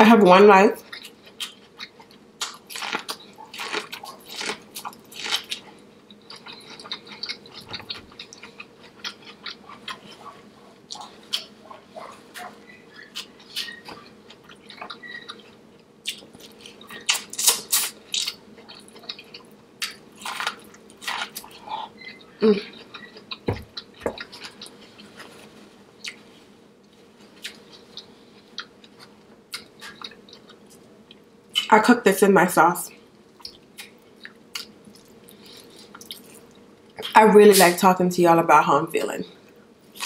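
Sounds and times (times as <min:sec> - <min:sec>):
wet chewing and lip smacks: 0:33.4 - 0:37.1.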